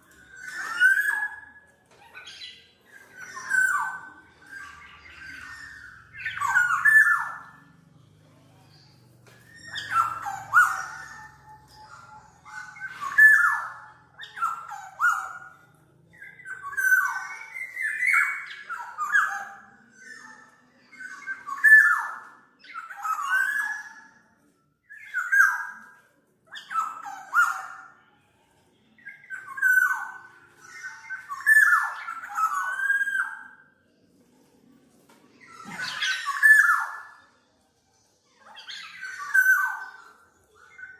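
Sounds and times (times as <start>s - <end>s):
bird calling: 2.2s - 7.7s, 9.4s - 15.6s.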